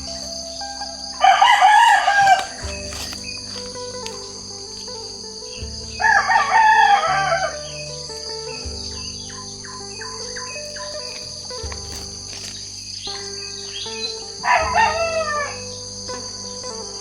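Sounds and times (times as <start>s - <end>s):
small birds chirping: 0.0s - 17.0s
rooster crowing: 1.0s - 3.2s, 6.0s - 7.8s.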